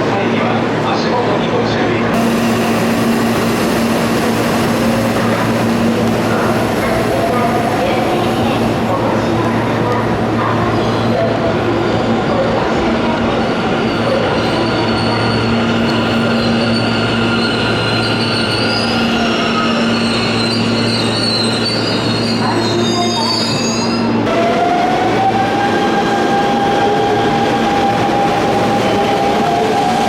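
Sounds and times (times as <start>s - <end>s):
train whine: 1.6s - 30.0s
train wheels squealing: 14.0s - 24.2s.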